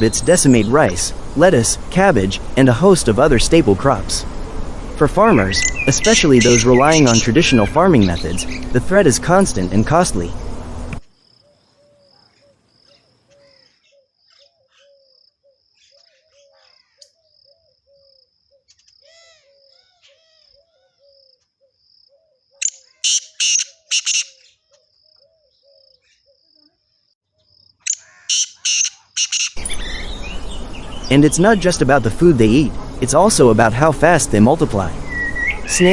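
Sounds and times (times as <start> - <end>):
low repeated call: 4.8 - 10.4, 22.6 - 24.4, 27.9 - 29.7
bird chirping loudly: 5.3 - 9.0, 11.4 - 26.7, 27.8 - 31.4
insect chirping high-pitched: 5.6 - 8.7, 20.6 - 29.6.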